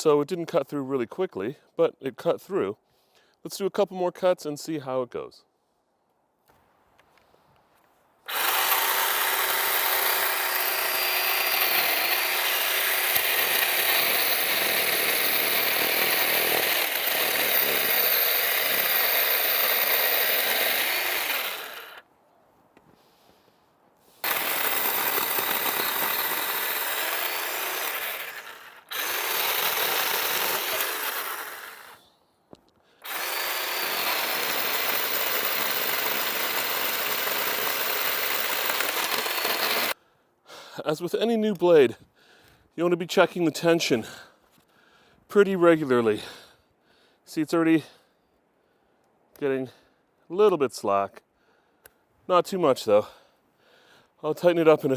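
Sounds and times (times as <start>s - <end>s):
battery chainsaw cutting wood: 8.3s - 22.1s, 24.2s - 32.0s, 33.0s - 40.0s.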